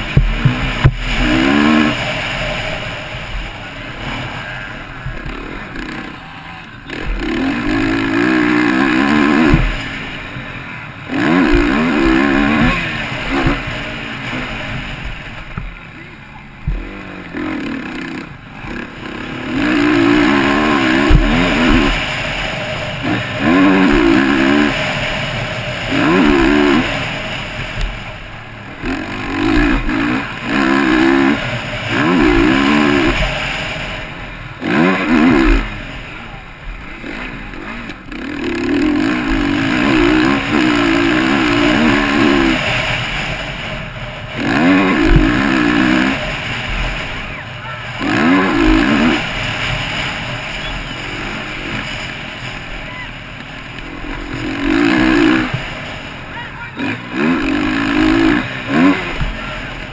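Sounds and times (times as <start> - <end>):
low thumps: 0.0 - 4.0, 6.8 - 10.4, 11.1 - 15.8, 16.5 - 17.1, 18.6 - 33.4, 36.6 - 47.4
motocross bike engine revving: 0.0 - 59.9.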